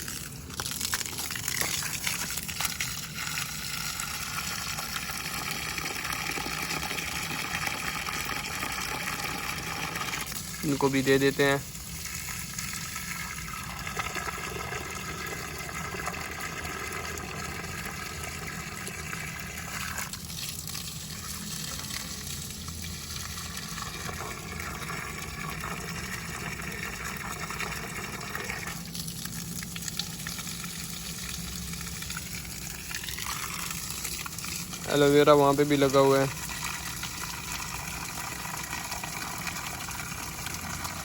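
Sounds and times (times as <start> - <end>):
water gushing from hose: 0.0 - 41.0.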